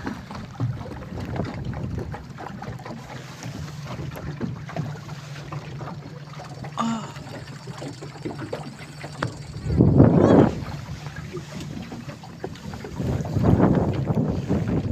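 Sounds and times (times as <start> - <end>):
low engine-like drone: 4.0 - 11.8
wind noise on microphone: 9.2 - 14.9.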